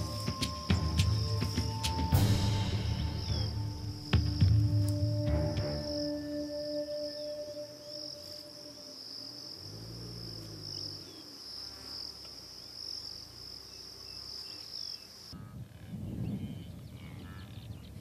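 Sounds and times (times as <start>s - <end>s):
insect chorus: 0.0s - 18.0s.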